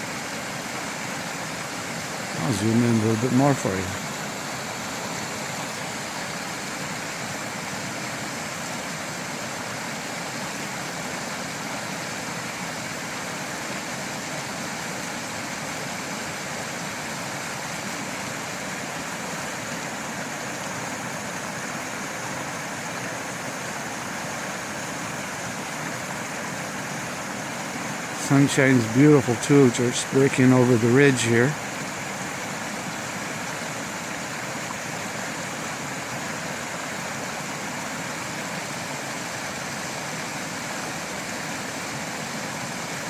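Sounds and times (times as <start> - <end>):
creek water rushing over dam: 0.0 - 43.0.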